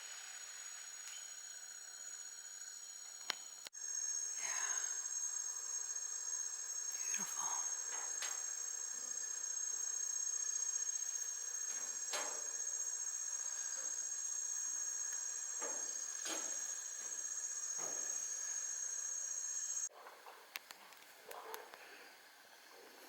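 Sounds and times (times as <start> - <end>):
insect chorus trilling: 0.0 - 19.9.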